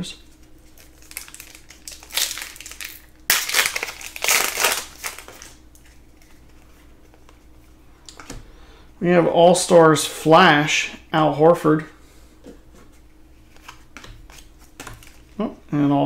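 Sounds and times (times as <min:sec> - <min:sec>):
foil wrapper crinkling: 0:00.3 - 0:06.6.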